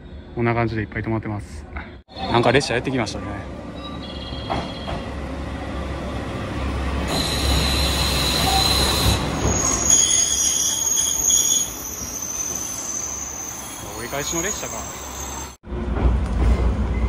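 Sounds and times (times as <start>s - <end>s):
train rumbling on rails: 0.0s - 17.0s
high-pitched wheel squealing: 7.1s - 15.6s.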